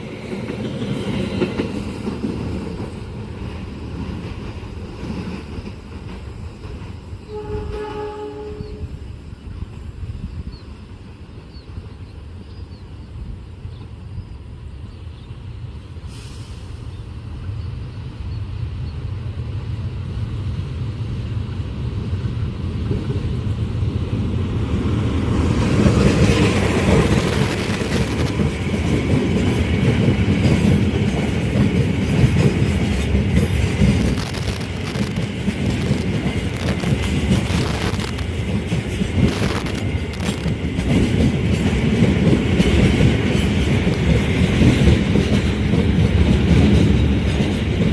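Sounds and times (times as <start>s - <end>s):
train rumbling past: 0.0s - 47.9s
wheels clattering on rails: 22.7s - 47.9s.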